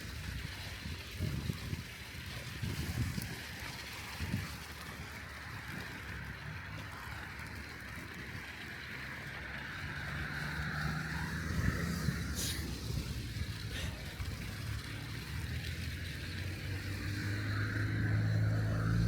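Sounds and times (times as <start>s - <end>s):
wind buffeting microphone: 0.0s - 19.0s
car approaching: 4.0s - 19.0s.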